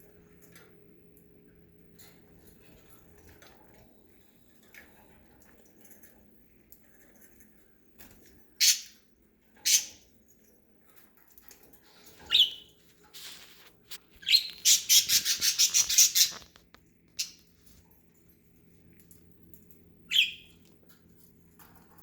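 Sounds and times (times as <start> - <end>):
budgerigars chirping: 12.2 - 12.7, 14.2 - 16.5, 20.1 - 20.5.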